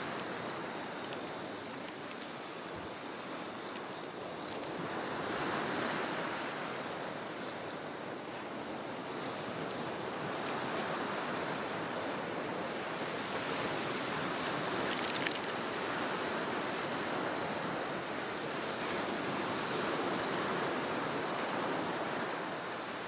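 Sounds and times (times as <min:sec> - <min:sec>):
sea waves washing onto shore: 0:09.0 - 0:23.0.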